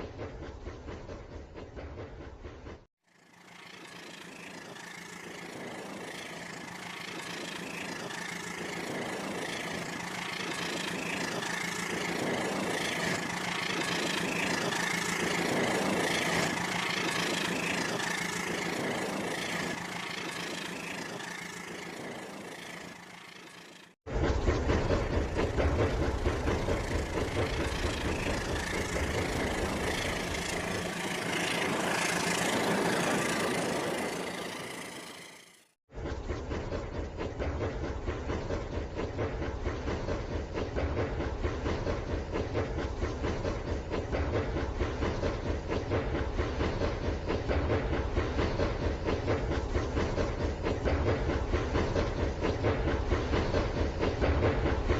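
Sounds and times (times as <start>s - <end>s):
soft clatter of train on track: 0.0s - 54.9s
toy train motor whining: 26.7s - 35.7s.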